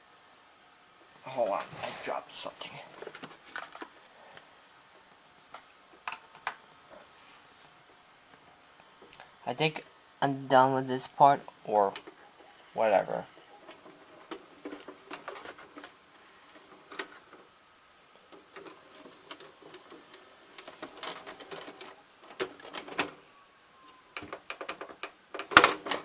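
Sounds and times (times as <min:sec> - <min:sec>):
plastic clicks and clatter: 0:03.0 - 0:04.0, 0:05.5 - 0:06.6, 0:13.7 - 0:16.0, 0:16.6 - 0:17.4, 0:18.3 - 0:23.2, 0:24.2 - 0:26.0.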